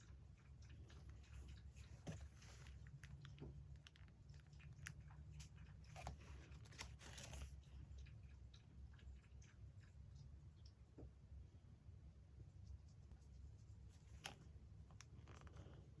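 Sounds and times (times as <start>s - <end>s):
paper crinkling and rustling: 6.0s - 7.5s.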